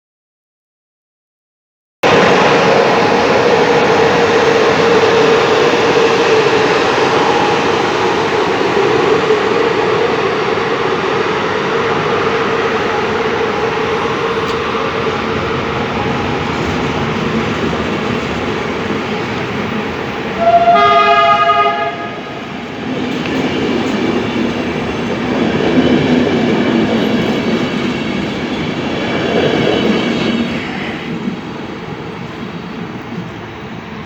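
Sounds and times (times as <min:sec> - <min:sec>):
train rumbling: 0:02.0 - 0:34.0
locomotive horn blast: 0:20.3 - 0:22.4.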